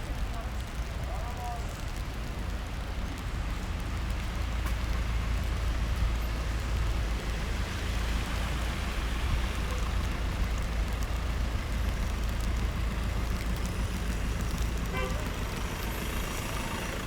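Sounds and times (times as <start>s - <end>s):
rain on a wet street: 0.0s - 17.0s.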